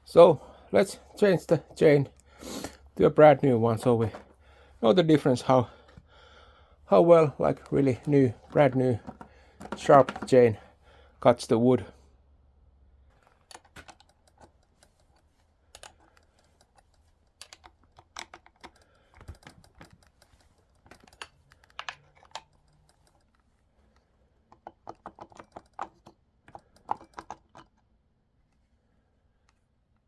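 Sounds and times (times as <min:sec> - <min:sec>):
tool and metal parts clinking: 0:07.4 - 0:10.6, 0:13.2 - 0:23.4, 0:24.5 - 0:27.8.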